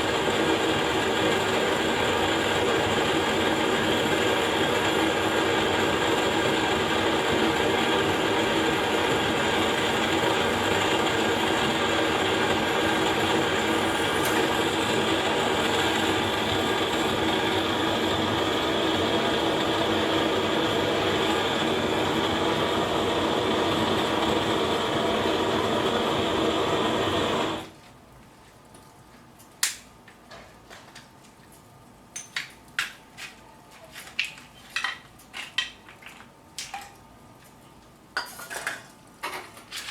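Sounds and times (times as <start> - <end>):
gas burner roaring: 0.0 - 27.8
clicks and crackles from fire: 27.2 - 38.1.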